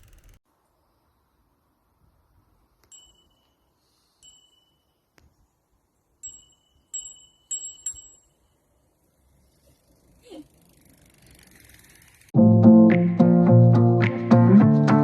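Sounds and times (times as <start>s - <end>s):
bicycle bell dings: 2.9s - 5.1s, 6.2s - 8.6s.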